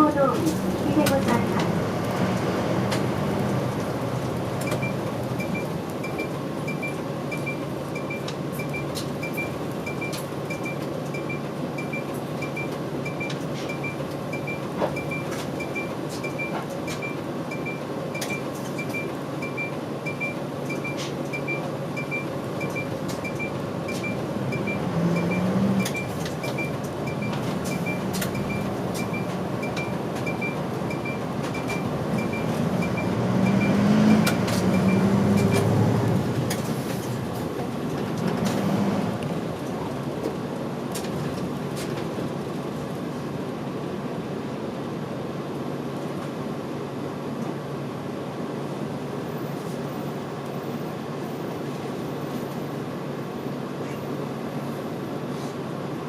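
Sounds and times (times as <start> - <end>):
bus engine and road noise: 0.0 - 56.0
turn signal beeping: 4.6 - 35.8.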